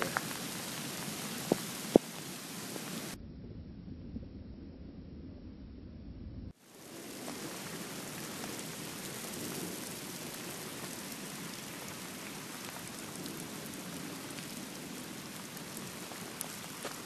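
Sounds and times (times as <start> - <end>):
heavy rain pouring: 0.0 - 3.2, 6.6 - 17.0.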